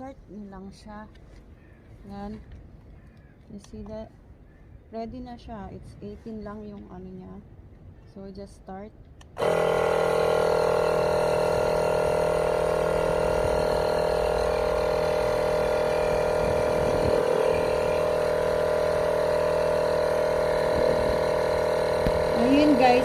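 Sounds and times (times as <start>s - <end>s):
air compressor running: 9.4s - 23.0s.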